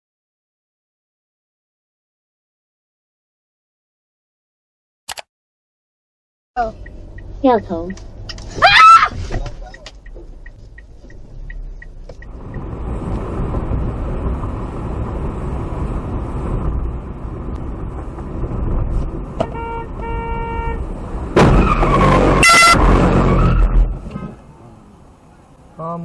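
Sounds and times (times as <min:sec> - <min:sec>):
car road noise: 0:06.6 - 0:26.0
car horn toots: 0:19.4 - 0:20.9, 0:22.0 - 0:23.9
loud horn blast: 0:19.4 - 0:20.9, 0:22.0 - 0:23.9
loud bang: 0:21.3 - 0:24.1.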